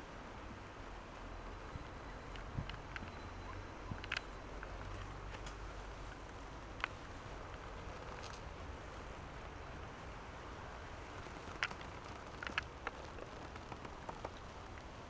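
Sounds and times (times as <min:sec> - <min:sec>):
short sharp clicks and creaks: 0:11.3 - 0:14.8.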